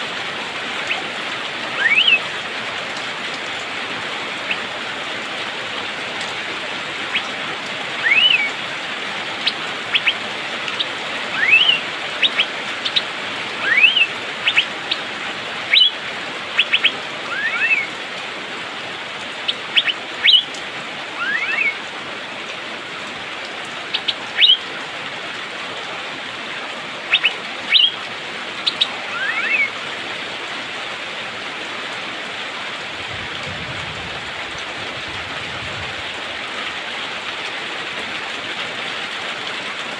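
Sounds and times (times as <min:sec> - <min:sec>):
rain hissing: 0:00.0 - 0:39.9
bird whistling rising notes: 0:01.8 - 0:02.2, 0:08.0 - 0:08.5, 0:11.4 - 0:12.5, 0:13.6 - 0:14.7, 0:16.6 - 0:17.9, 0:19.8 - 0:20.5, 0:21.2 - 0:21.8, 0:24.0 - 0:24.6, 0:27.1 - 0:28.0, 0:28.6 - 0:29.7.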